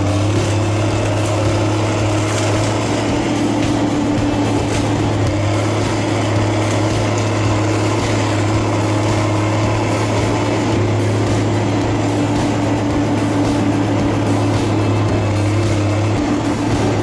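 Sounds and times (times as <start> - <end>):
heavy machinery engine running: 0.0 - 17.0.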